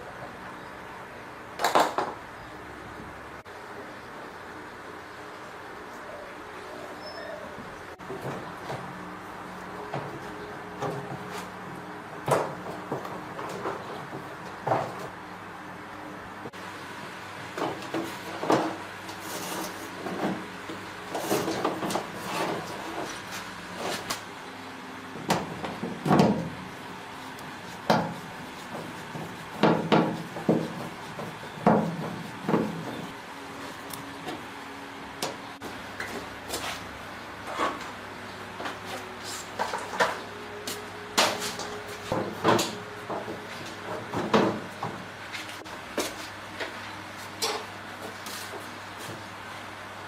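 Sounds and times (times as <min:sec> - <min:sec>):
knocks and clatter of hand work: 0:17.6 - 0:18.8, 0:25.2 - 0:26.6, 0:27.8 - 0:33.2, 0:41.2 - 0:45.0.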